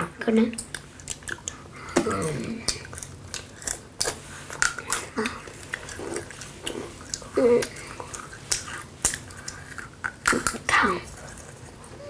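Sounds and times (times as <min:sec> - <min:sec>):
cookies being bitten and chewed: 0:00.2 - 0:12.0.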